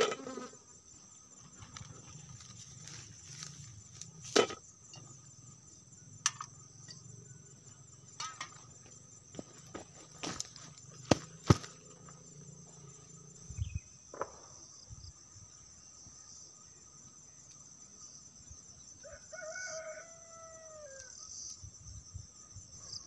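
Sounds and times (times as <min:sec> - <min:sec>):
insects droning: 0:00.0 - 0:23.0
rooster crowing: 0:19.0 - 0:21.2.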